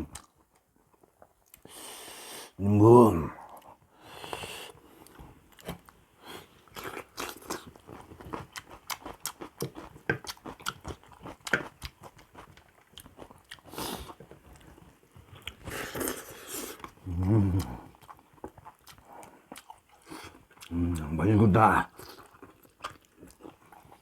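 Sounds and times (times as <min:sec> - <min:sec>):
person chewing wetly: 0:06.6 - 0:21.1, 0:21.8 - 0:24.0.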